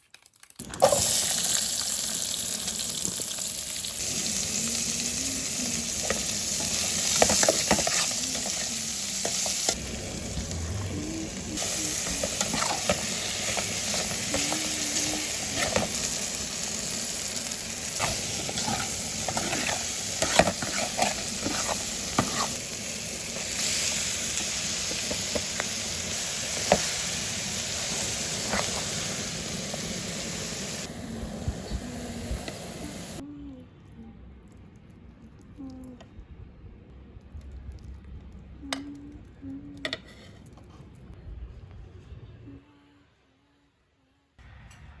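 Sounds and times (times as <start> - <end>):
food sizzling in a pan: 0.7 - 33.2.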